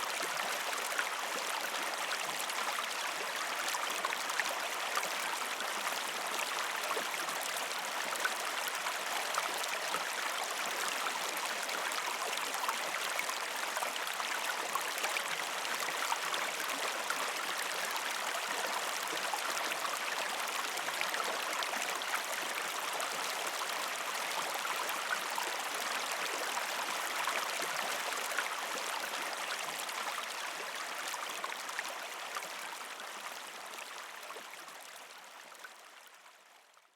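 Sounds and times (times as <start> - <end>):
stream flowing over rocks: 0.0 - 35.5.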